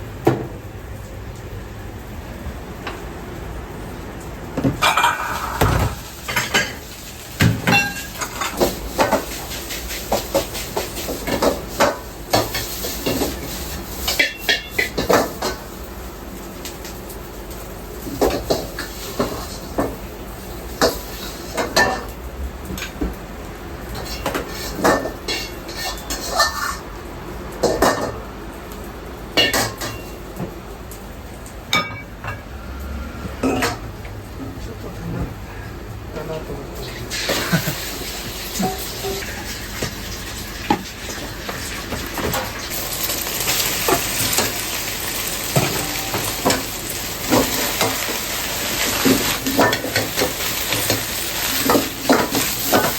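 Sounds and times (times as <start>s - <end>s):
dishes and pots clattering: 4.6s - 6.8s, 7.4s - 9.3s, 10.0s - 15.6s, 20.8s - 22.1s, 23.9s - 26.9s, 27.6s - 28.2s, 29.4s - 30.5s, 31.7s - 32.5s, 33.4s - 33.9s, 37.1s - 40.0s, 45.4s - 52.9s.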